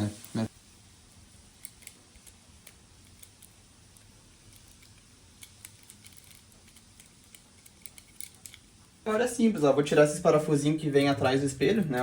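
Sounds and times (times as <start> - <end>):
small clicks of wiring work: 1.5 - 9.0.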